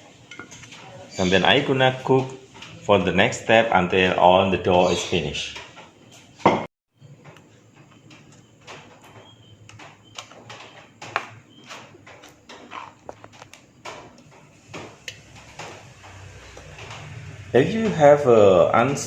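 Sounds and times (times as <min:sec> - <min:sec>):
utensils knocking against pan: 0:00.0 - 0:00.9.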